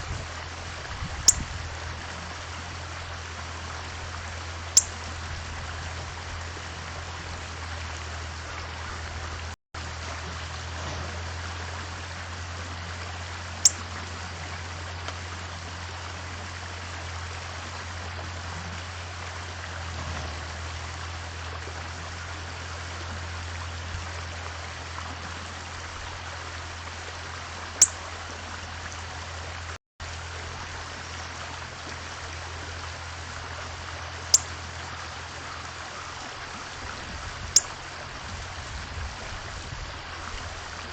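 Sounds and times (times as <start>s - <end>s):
bird chip notes: 13.6s - 13.9s.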